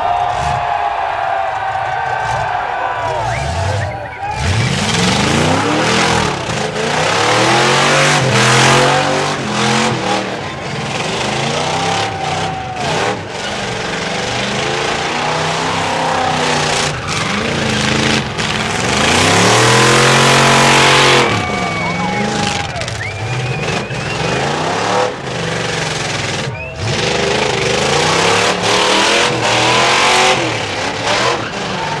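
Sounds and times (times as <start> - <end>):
spinning tyres rushing: 0.0 - 32.0
car engine revving hard: 3.3 - 32.0.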